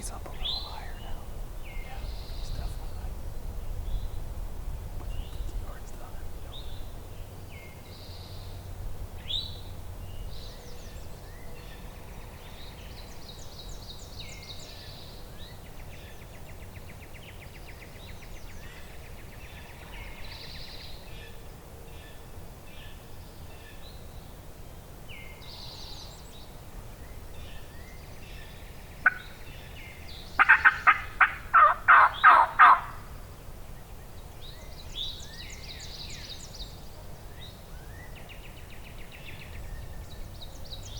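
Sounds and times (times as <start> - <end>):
songbirds chirping: 0.0 - 40.9
turkey gobbling: 29.0 - 29.4, 30.4 - 33.0.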